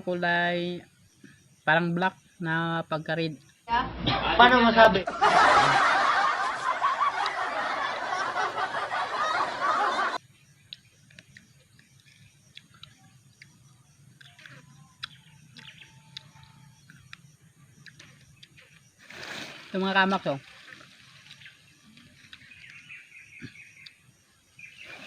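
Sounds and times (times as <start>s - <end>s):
loud laughing: 5.0s - 10.2s
chewing fruit: 10.5s - 19.0s, 20.7s - 24.2s.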